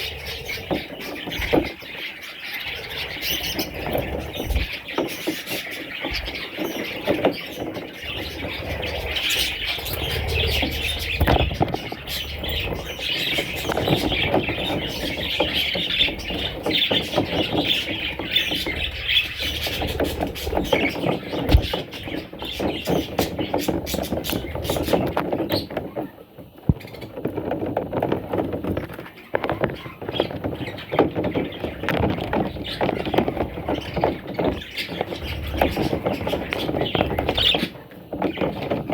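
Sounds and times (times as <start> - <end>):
budgerigar chicks chirping: 0.0 - 38.9.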